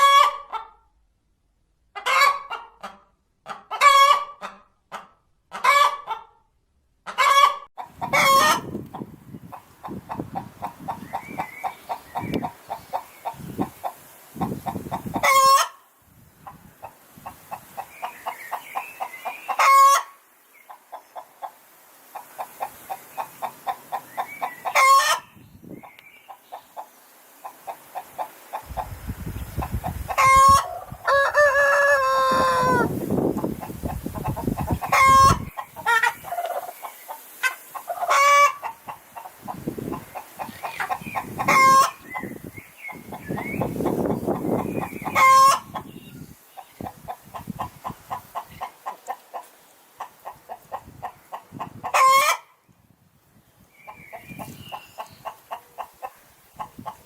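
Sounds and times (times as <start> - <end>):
hens cackling: 0.0 - 0.8, 2.0 - 6.4, 7.0 - 15.8, 16.4 - 52.6, 53.9 - 57.0
rooster crowing: 30.3 - 33.0.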